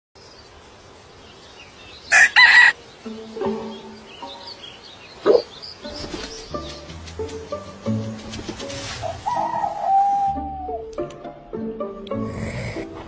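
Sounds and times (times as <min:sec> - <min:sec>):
soft low bird calls: 0:09.0 - 0:10.9.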